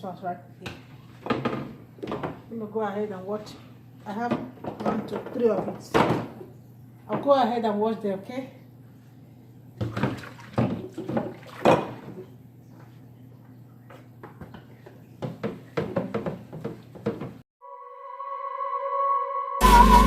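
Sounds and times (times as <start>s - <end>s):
shelves knocking and clinking: 15.2s - 17.4s
electronic music tone: 17.6s - 20.0s.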